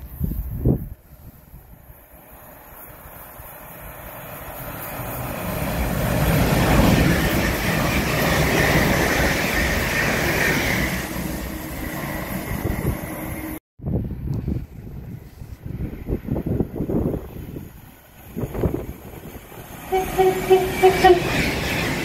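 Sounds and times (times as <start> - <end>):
high hiss: 0.0 - 5.7
train wheels rumbling on rails: 0.0 - 13.6, 14.4 - 22.0.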